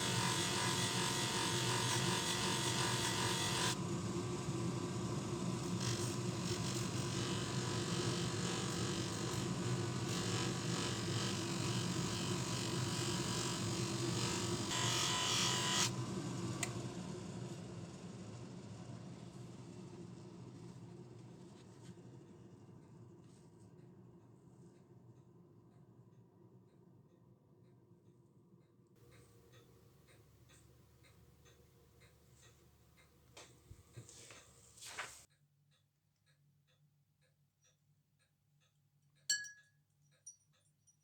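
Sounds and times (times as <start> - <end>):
electric bench motor humming: 0.0 - 3.8, 5.2 - 16.0.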